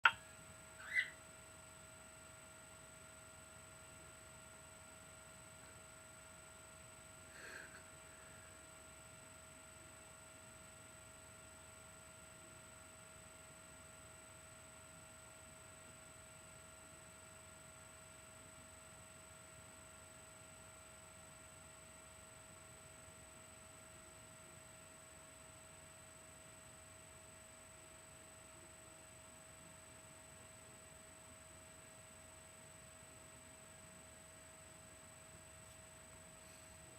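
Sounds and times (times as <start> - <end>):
faint high whine: 0.0 - 36.9
cockatiel chirp: 0.8 - 1.2.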